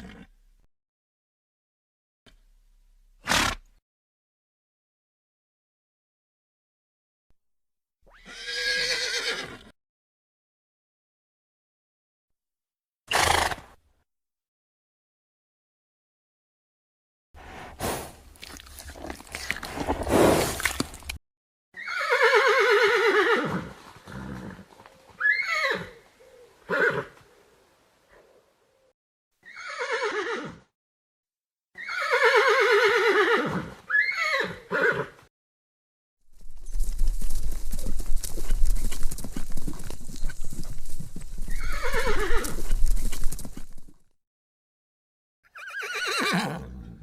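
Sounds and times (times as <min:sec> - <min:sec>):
horse whinnying: 0:00.0 - 0:00.4, 0:08.1 - 0:09.7, 0:13.1 - 0:13.7, 0:21.8 - 0:27.2, 0:29.4 - 0:30.7, 0:31.8 - 0:35.2, 0:38.2 - 0:43.9, 0:45.5 - 0:47.0
horse hooves clip-clopping: 0:18.2 - 0:21.2, 0:23.6 - 0:25.4, 0:36.3 - 0:44.0.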